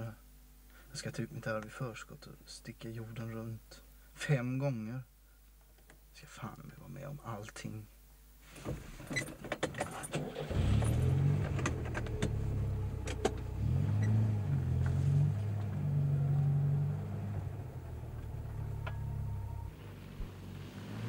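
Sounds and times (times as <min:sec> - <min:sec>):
car engine starting and revving: 0:09.9 - 0:21.0.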